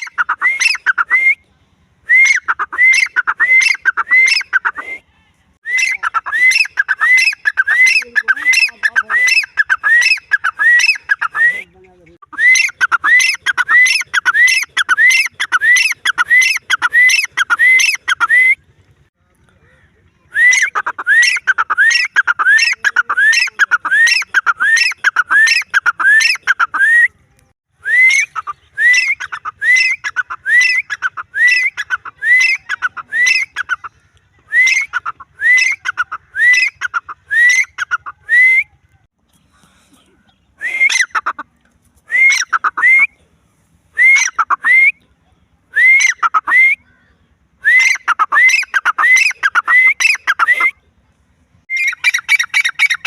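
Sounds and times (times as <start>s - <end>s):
francolin calling: 51.7s - 53.0s.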